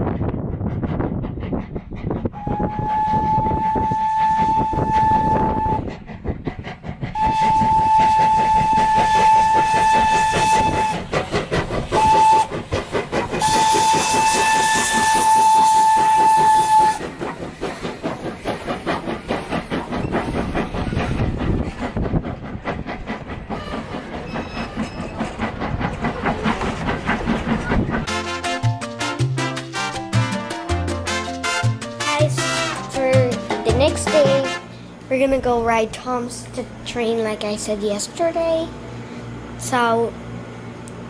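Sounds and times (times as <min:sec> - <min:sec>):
train running noise: 0:00.0 - 0:41.0
steam locomotive whistle blasts: 0:02.4 - 0:05.9, 0:07.2 - 0:11.1, 0:12.0 - 0:12.5, 0:13.4 - 0:17.0, 0:28.1 - 0:32.9.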